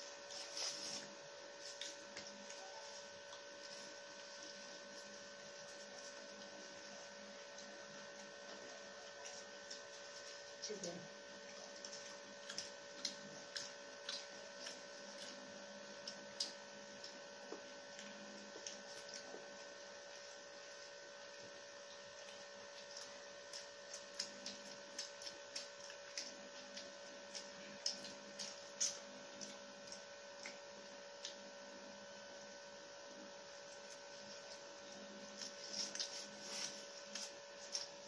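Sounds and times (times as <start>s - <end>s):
steady electrical hum: 0.0s - 38.0s
chewing mouth clicks: 11.4s - 17.3s, 21.9s - 31.5s.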